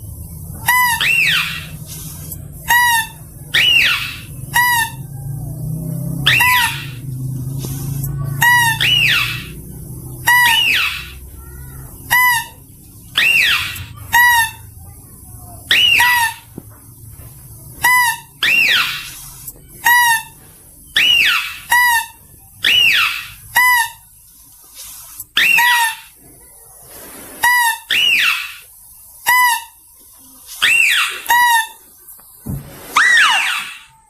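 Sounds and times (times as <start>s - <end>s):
mouse-deer squeal and trill calls: 0.5s - 5.4s, 6.0s - 7.1s, 7.9s - 14.7s, 15.7s - 16.5s, 17.8s - 24.2s, 24.9s - 26.2s, 27.4s - 29.8s, 30.5s - 32.0s, 33.0s - 34.0s.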